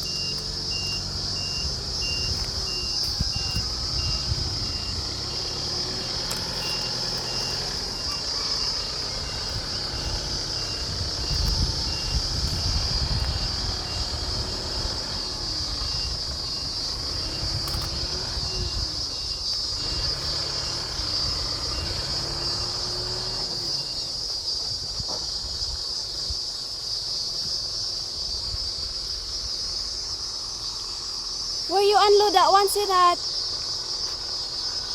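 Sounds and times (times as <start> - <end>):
truck engine running: 0.0 - 26.8
insect chirring: 0.0 - 34.9.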